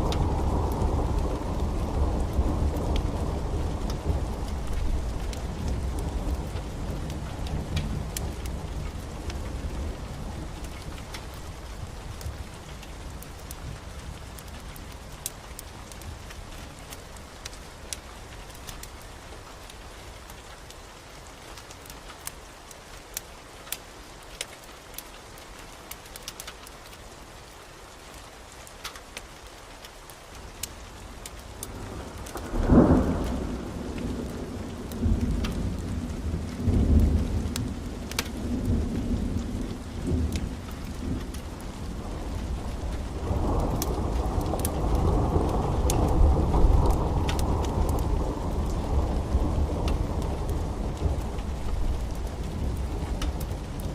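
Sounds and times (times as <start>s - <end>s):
thunder rumbling: 0.0s - 14.7s, 31.7s - 53.9s
steady rain: 0.0s - 53.9s.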